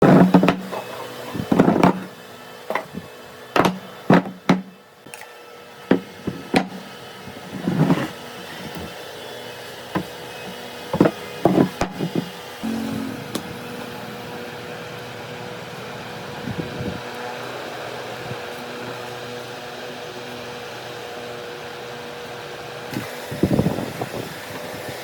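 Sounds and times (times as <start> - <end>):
faint hum: 12.6 - 14.8.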